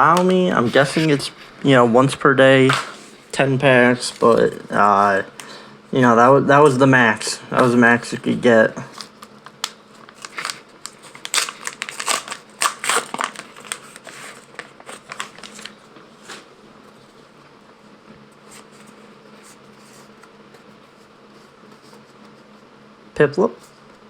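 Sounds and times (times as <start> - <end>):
plastic wrapper crinkling: 8.9 - 16.4.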